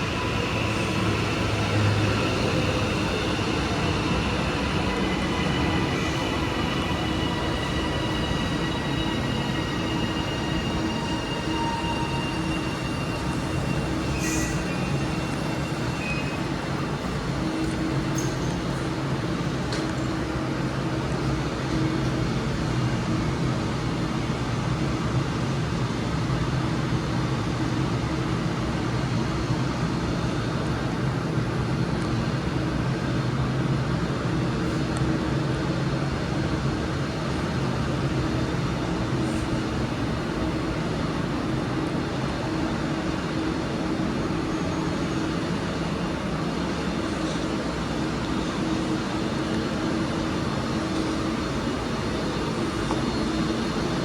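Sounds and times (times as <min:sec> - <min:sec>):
electric train humming: 0:00.0 - 0:25.8.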